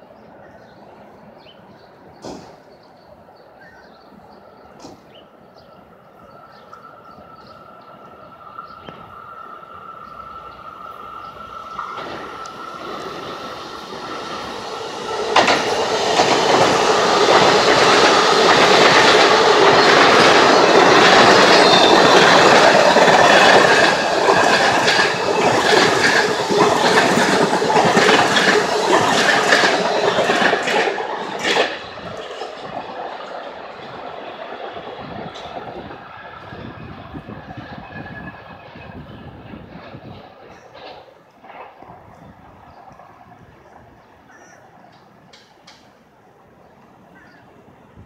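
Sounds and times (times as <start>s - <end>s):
train wheels clacking: 2.2s - 2.6s, 10.4s - 42.2s.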